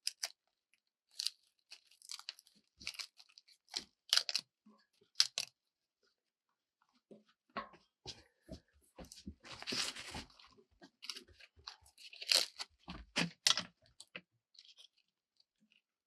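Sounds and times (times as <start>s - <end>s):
crunching and tearing: 1.1s - 4.5s, 5.1s - 5.5s, 9.5s - 15.1s.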